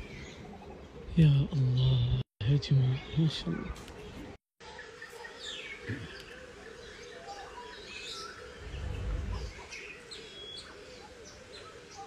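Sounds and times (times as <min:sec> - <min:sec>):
birds chirping and calling: 0:00.0 - 0:12.0
steady low hum: 0:08.4 - 0:09.8
low rumble: 0:08.5 - 0:09.7.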